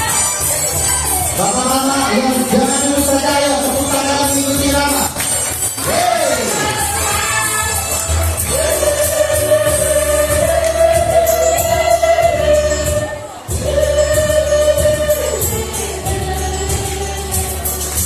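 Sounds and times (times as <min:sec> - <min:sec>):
choir singing held chords: 0:05.7 - 0:18.0.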